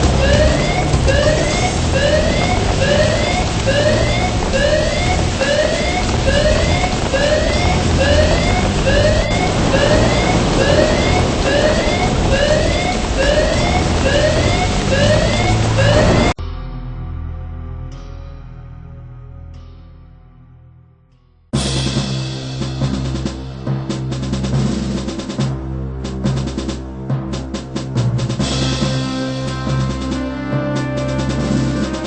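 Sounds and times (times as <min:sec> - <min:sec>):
loud rushing noise: 0:00.0 - 0:16.4
siren whooping: 0:00.0 - 0:16.4.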